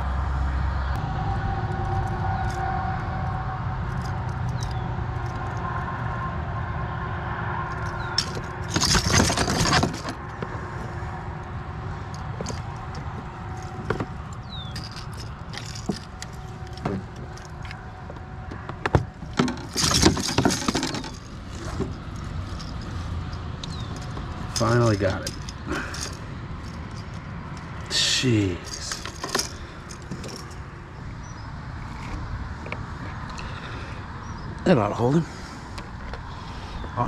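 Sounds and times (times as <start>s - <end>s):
metal wires and hooks jangling: 3.8s - 5.8s, 7.7s - 10.4s, 12.0s - 17.9s, 19.0s - 30.7s.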